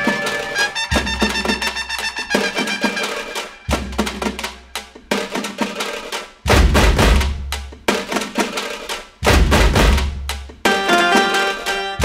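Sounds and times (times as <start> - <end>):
drum and percussion music: 0.0 - 12.0
heavy low drum hits: 6.5 - 7.6, 9.2 - 10.3.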